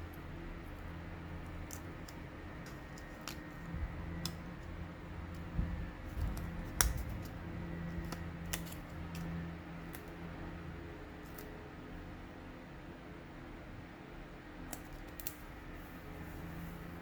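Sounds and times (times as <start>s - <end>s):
steady low hum: 0.0s - 17.0s
scissors snipping paper: 0.8s - 4.7s, 5.3s - 10.2s, 11.2s - 11.5s, 14.7s - 15.5s.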